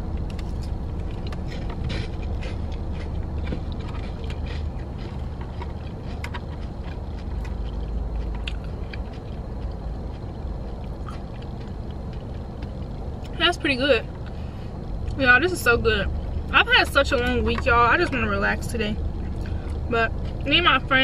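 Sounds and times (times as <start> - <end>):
chewing crunchy salad: 0.0 - 13.4
car low hum: 0.0 - 21.0.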